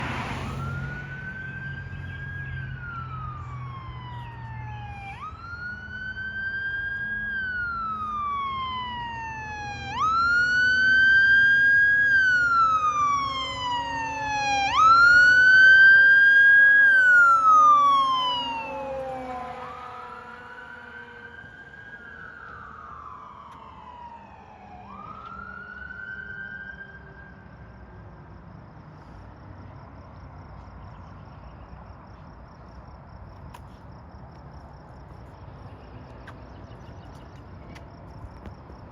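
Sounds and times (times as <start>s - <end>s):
fire engine siren wailing: 0.0s - 27.9s.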